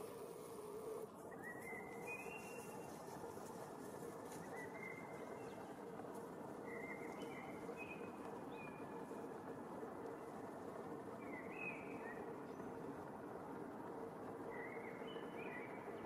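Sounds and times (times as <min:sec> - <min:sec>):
outdoor background hiss: 0:00.0 - 0:16.0
faint whistled bird calls: 0:01.3 - 0:03.1, 0:14.5 - 0:16.0.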